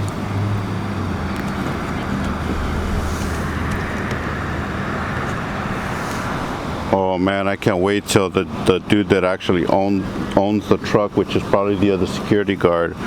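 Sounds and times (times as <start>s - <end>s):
low mechanical hum: 0.0s - 13.0s
road traffic noise: 0.0s - 13.0s.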